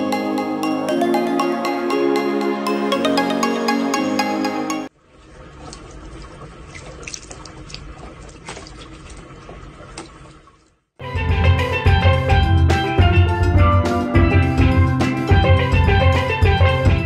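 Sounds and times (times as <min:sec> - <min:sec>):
cat drinking water: 0:05.3 - 0:10.5.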